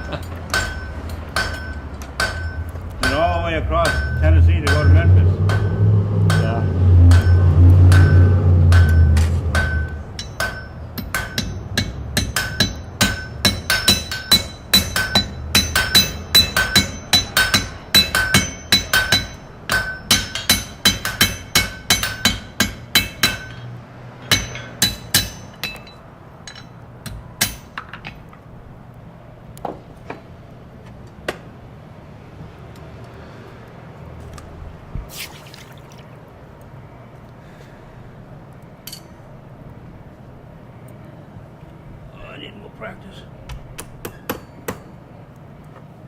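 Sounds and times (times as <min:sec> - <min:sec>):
hammer striking anvil: 0:00.5 - 0:23.6.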